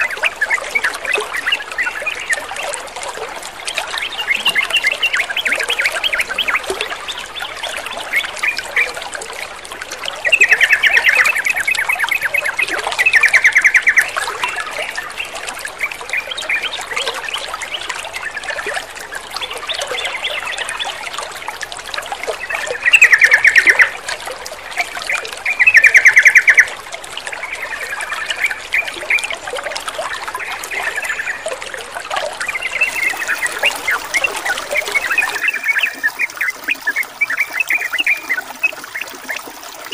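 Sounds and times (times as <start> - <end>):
running water trickle: 0.0 - 39.9
birds chirping and chattering: 32.4 - 39.6.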